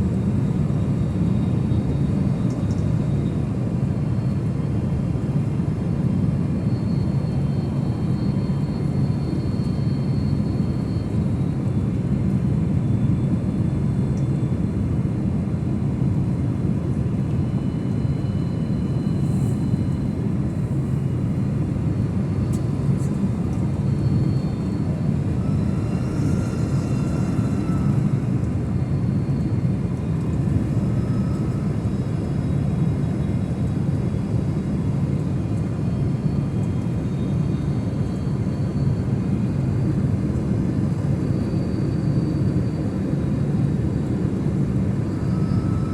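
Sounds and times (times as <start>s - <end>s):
airliner low rumble: 0.0s - 45.9s.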